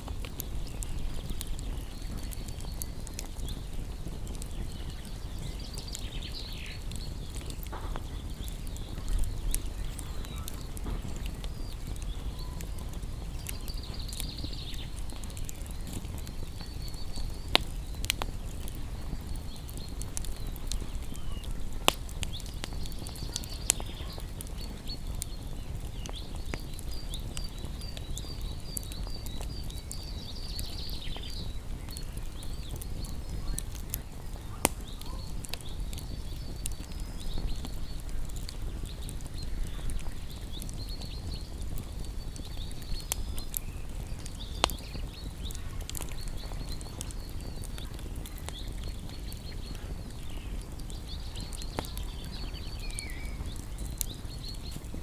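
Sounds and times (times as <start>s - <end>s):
crackling wood fire: 0.0s - 55.0s
sharp pops from fire: 0.0s - 55.0s
small birds chirping and trilling: 0.0s - 55.0s.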